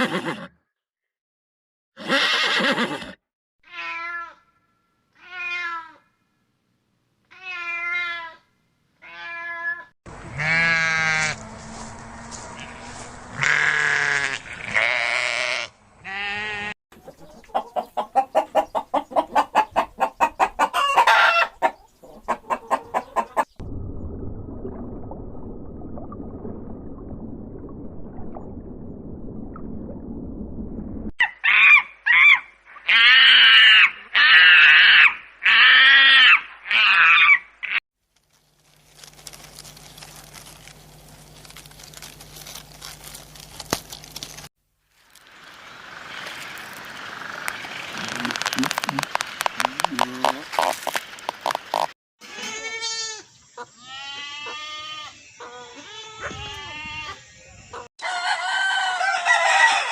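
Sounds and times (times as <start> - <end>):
chickens clucking: 17.0 - 23.6, 46.6 - 52.0
rooster crowing: 20.6 - 21.6, 58.0 - 59.9.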